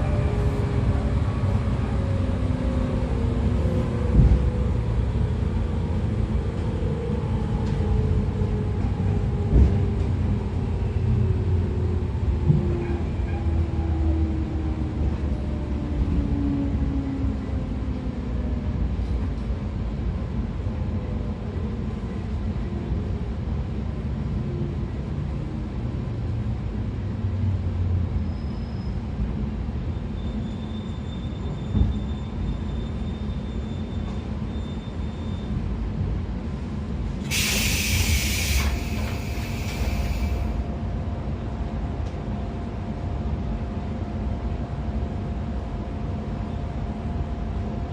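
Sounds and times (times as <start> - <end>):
train wheels rumbling on rail: 0.0 - 47.9
loud high hiss: 37.3 - 40.6.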